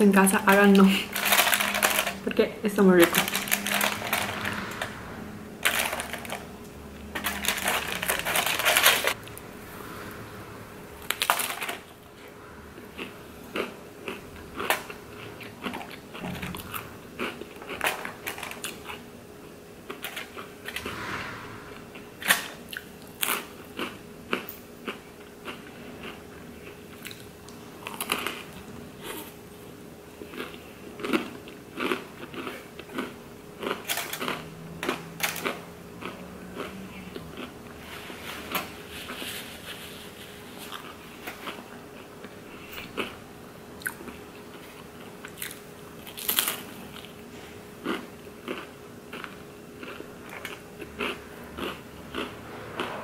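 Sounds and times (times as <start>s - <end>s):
crunching and chewing snacks: 0.4s - 2.2s, 3.0s - 4.9s, 7.1s - 9.2s, 13.0s - 19.1s, 19.9s - 20.8s, 22.3s - 29.4s, 30.2s - 39.8s, 40.4s - 43.2s, 43.8s - 53.0s.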